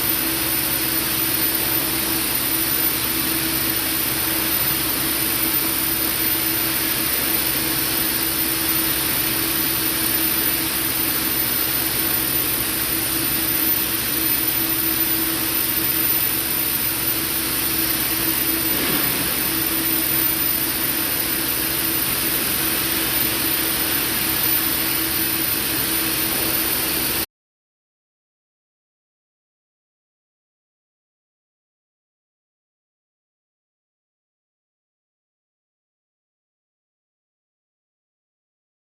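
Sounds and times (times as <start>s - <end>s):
low machinery hum: 0.0s - 27.2s
machinery hiss: 0.1s - 27.2s.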